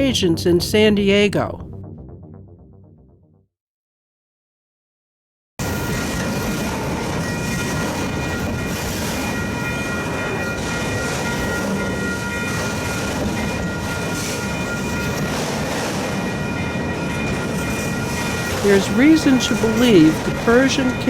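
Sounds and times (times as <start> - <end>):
train rumbling: 5.6 - 21.0.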